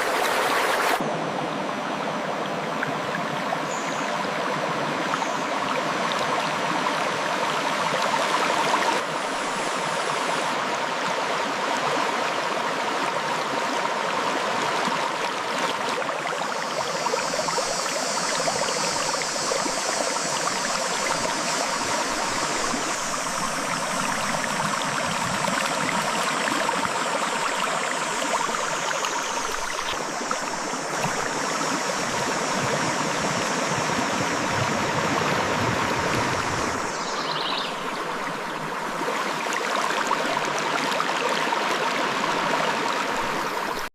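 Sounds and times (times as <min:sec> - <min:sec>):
river flowing over rocks: 0:00.0 - 0:43.9
bright high hiss: 0:16.5 - 0:34.8, 0:36.4 - 0:38.6.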